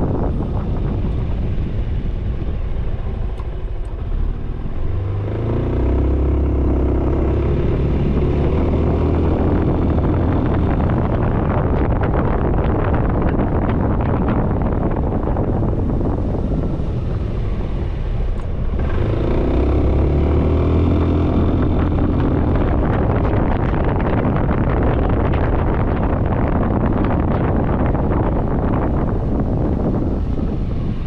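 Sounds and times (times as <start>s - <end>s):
wind rushing over microphone: 0.0s - 31.0s
scooter engine: 15.1s - 24.2s.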